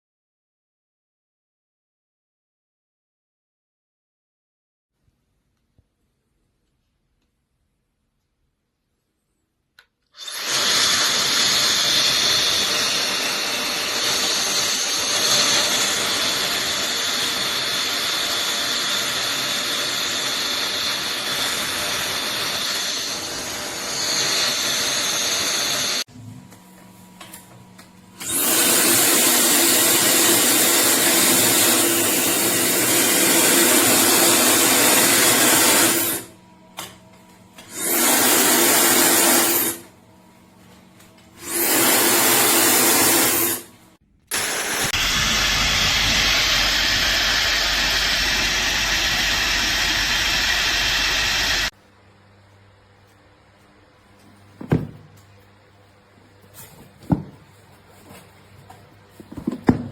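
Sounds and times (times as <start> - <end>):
hair dryer blowing: 10.2 - 26.1, 28.2 - 36.3, 37.6 - 39.9, 41.4 - 51.7.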